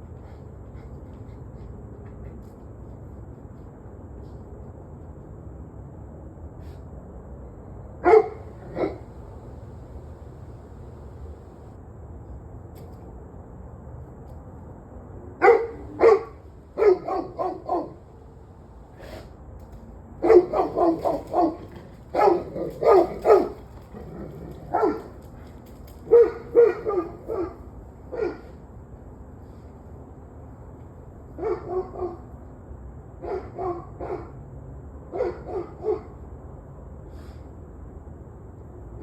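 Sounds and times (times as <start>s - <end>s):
dog barking: 8.0s - 10.0s, 15.4s - 18.0s, 20.2s - 25.2s, 26.0s - 28.5s, 31.4s - 32.2s, 33.2s - 34.3s, 35.1s - 36.1s.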